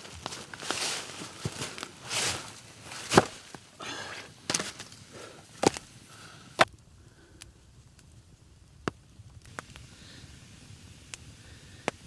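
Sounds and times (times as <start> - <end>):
wood cracking: 0.0 - 5.9.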